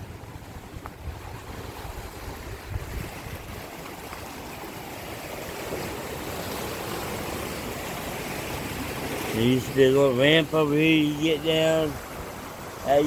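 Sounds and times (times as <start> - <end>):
wind buffeting microphone: 0.0 - 9.9
river water rushing: 0.0 - 13.0.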